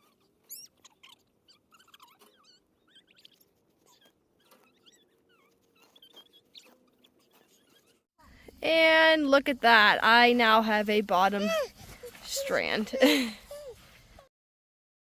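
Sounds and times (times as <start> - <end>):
small birds chirping: 0.0 - 8.1.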